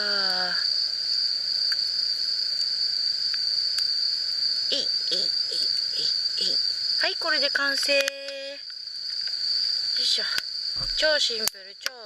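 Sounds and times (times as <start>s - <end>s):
insects trilling: 0.0s - 12.0s
faint ticks: 1.7s - 1.9s, 3.3s - 3.9s, 7.4s - 12.0s.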